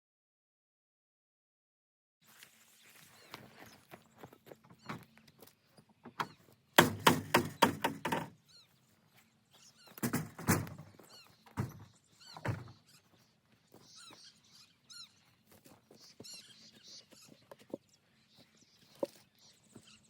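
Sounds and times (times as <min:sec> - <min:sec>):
small birds chirping: 0:02.2 - 0:20.0
wooden knocks and clatter: 0:06.0 - 0:08.3, 0:10.0 - 0:12.8
logs landing with thuds: 0:06.1 - 0:08.3, 0:10.0 - 0:12.7.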